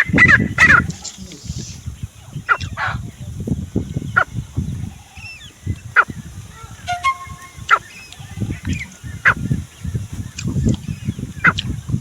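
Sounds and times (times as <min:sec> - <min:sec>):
francolin calling: 0:00.0 - 0:12.0.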